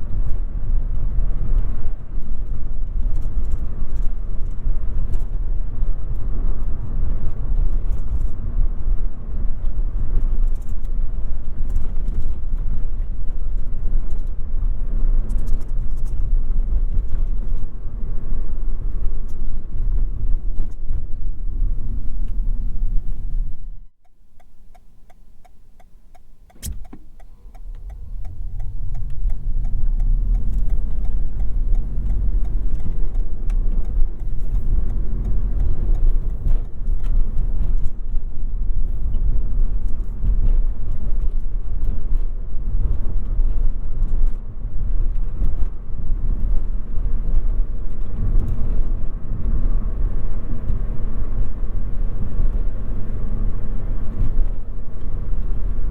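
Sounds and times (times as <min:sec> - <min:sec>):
road and tyre rumble: 0:00.0 - 0:55.9
faint even ticking: 0:21.7 - 0:36.7
sharp click: 0:24.4 - 0:36.7.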